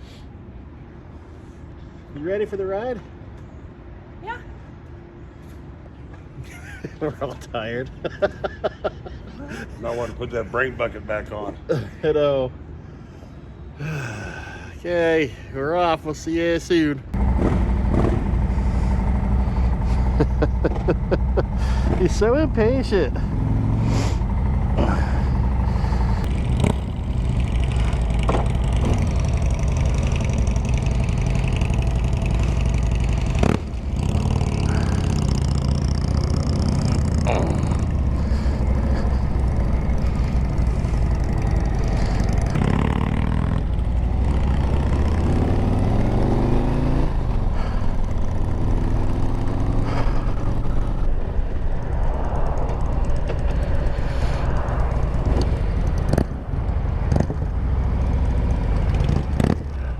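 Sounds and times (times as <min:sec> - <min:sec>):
motorcycle engine accelerating: 0:17.2 - 0:59.9.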